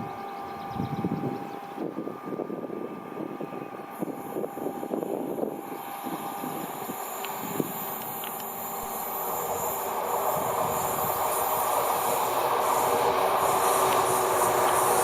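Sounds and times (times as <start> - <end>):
train approaching: 0.0 - 15.0.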